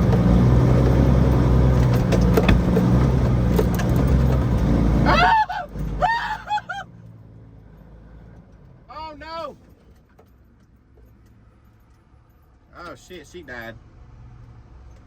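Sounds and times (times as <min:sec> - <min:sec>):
truck engine under load: 0:00.0 - 0:10.6
person crying out: 0:05.1 - 0:06.9.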